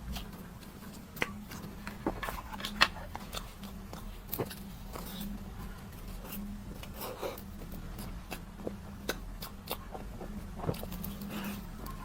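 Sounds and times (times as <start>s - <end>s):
wet chewing with mouth smacks: 6.1s - 12.0s.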